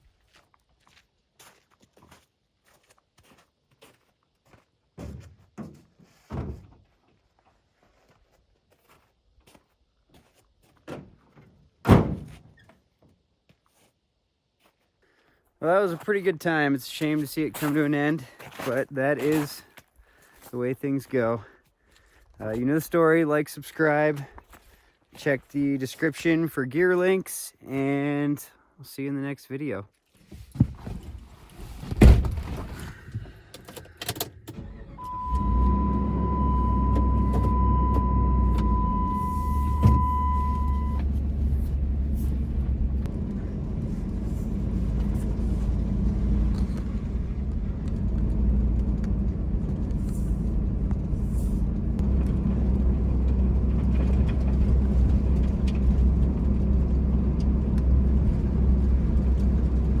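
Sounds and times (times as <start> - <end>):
engine and road rumble: 30.2 - 60.0
truck engine starting: 32.0 - 60.0
warning chime: 35.0 - 41.0.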